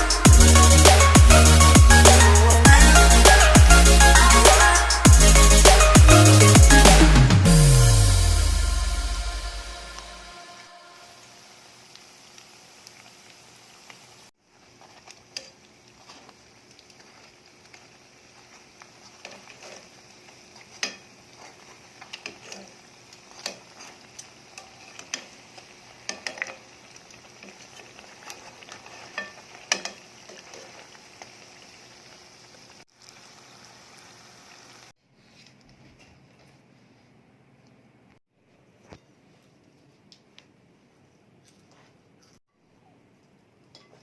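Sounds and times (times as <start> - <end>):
food sizzling in hot oil: 11.1 - 35.0.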